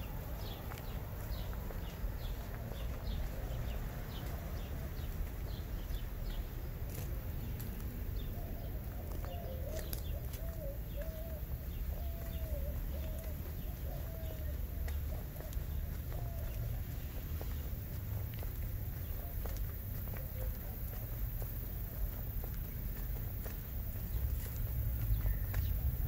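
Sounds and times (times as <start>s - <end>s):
low wavering coo-like calls: 8.4s - 16.9s.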